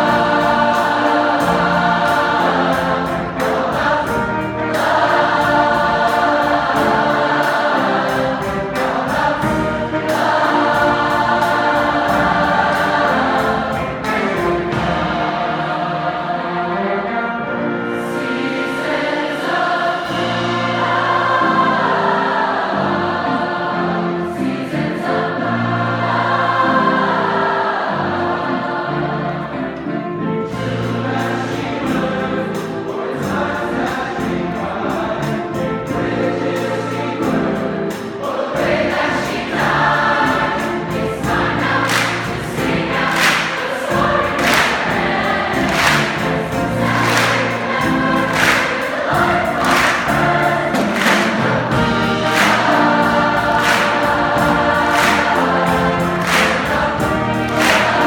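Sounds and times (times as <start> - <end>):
choir singing: 0.0 - 58.0
jazz band playing: 0.0 - 58.0
sharp percussive hits: 41.6 - 58.0.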